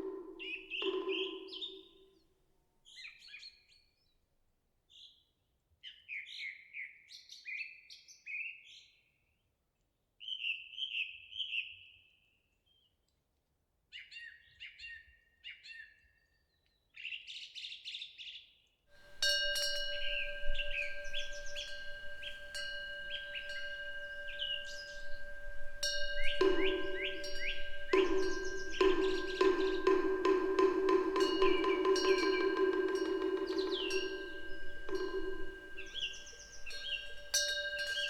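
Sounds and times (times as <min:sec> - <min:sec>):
wind bell ringing: 0:00.0 - 0:01.8, 0:19.0 - 0:38.0
songbirds chirping: 0:00.0 - 0:01.9, 0:19.0 - 0:38.0.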